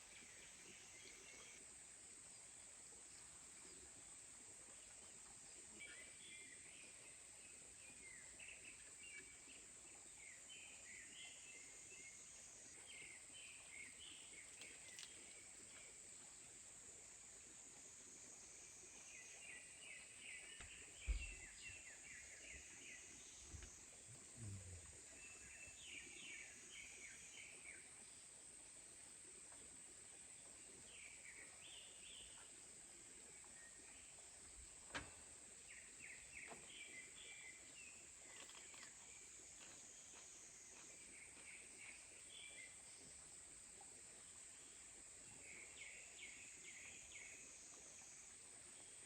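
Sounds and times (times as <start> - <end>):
small birds chirping: 5.8 - 16.1, 18.9 - 27.9, 30.4 - 49.0
soft low thump: 20.6 - 21.6.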